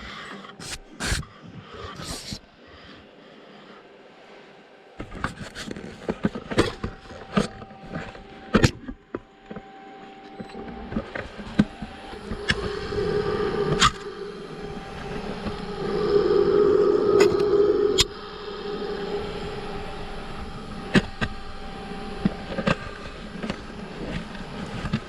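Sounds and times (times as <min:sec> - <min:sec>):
lathe hum: 0:11.2 - 0:25.0.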